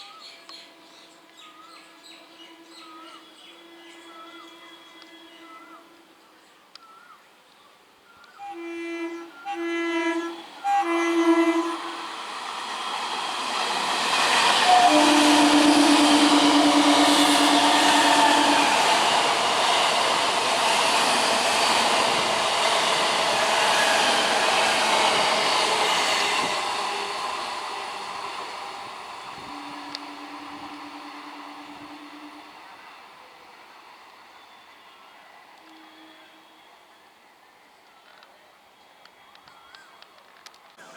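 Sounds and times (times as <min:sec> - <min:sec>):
train horn blasts: 0:00.5 - 0:06.1, 0:08.4 - 0:33.0, 0:35.6 - 0:36.9
train wheels rushing on rail: 0:10.2 - 0:35.9.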